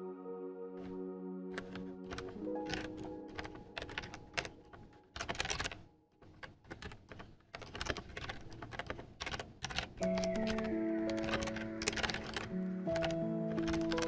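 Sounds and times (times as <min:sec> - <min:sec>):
background music: 0:00.0 - 0:06.0, 0:10.0 - 0:14.0
typing on computer keyboard: 0:01.5 - 0:14.0.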